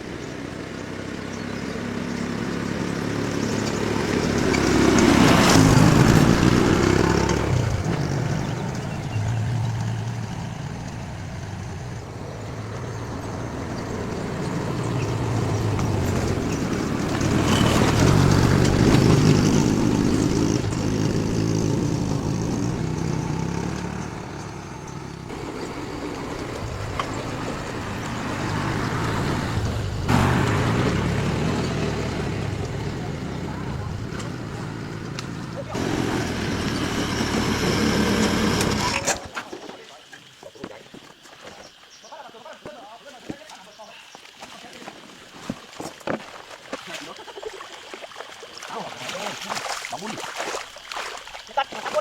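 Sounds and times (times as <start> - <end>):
vehicle engine running: 0.0 - 39.1.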